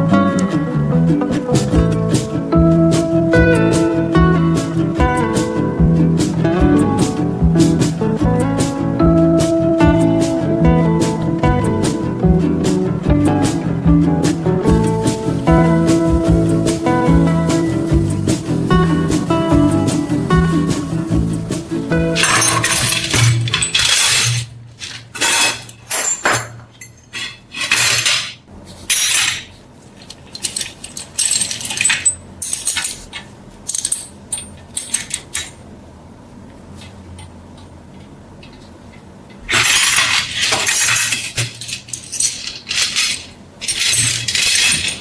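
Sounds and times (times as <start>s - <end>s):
metal tools clinking: 22.2s - 35.6s, 39.4s - 45.0s.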